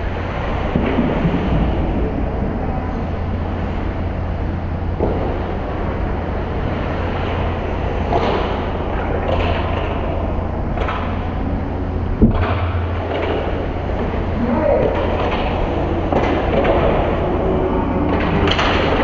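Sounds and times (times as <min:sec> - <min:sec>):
arena low hum: 0:00.0 - 0:19.0
sharp knocks and clatters: 0:07.2 - 0:11.4, 0:12.1 - 0:17.2, 0:18.0 - 0:19.0.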